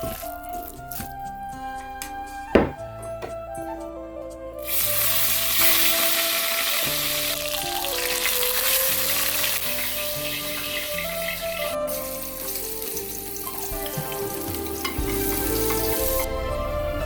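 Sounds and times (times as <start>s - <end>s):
background music: 0.0s - 17.0s
food sizzling in hot oil: 4.6s - 16.3s.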